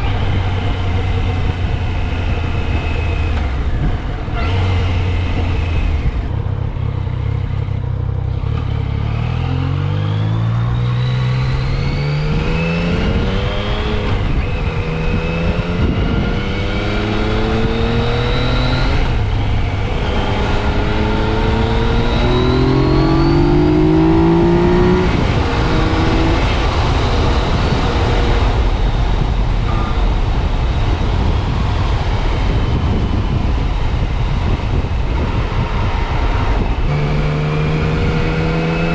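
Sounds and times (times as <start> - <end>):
motorcycle engine accelerating: 0.0 - 38.9
wind rush: 11.4 - 38.9.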